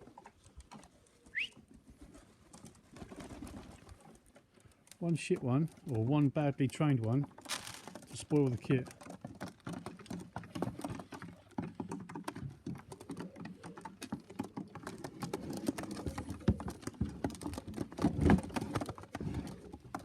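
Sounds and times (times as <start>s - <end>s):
pigeons cooing: 1.0s - 4.0s, 9.9s - 20.0s.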